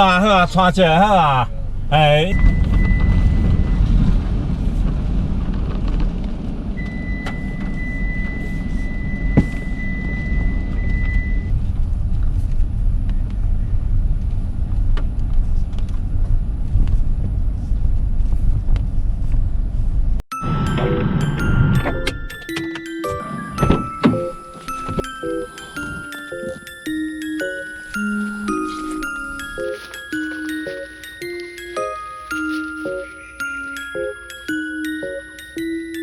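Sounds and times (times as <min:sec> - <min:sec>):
car cabin road rumble: 0:00.0 - 0:22.3
thin high tone: 0:20.3 - 0:36.0.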